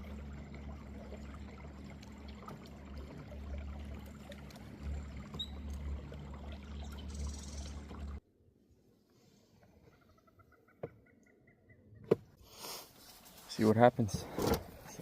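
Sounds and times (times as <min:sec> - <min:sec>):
water lapping around boat: 0:00.0 - 0:08.2.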